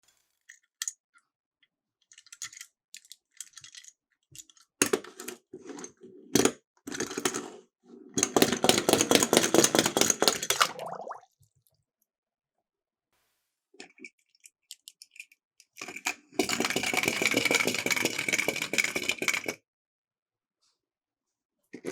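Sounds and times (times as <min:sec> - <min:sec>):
toy cars rattling down a slope: 0:14.2 - 0:19.6.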